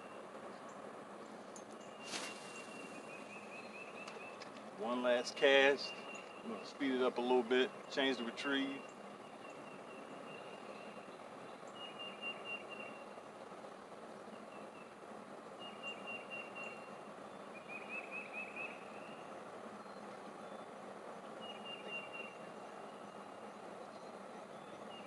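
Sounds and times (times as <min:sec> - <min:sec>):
outdoor background hiss: 0:00.0 - 0:25.0
songbird trilling: 0:07.6 - 0:13.2, 0:15.6 - 0:20.8, 0:21.4 - 0:23.2.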